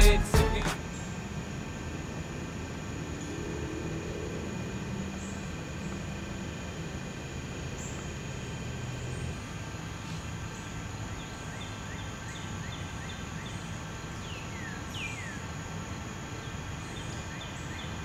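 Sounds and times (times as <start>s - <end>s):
songbird singing: 10.0s - 15.5s, 16.4s - 18.0s.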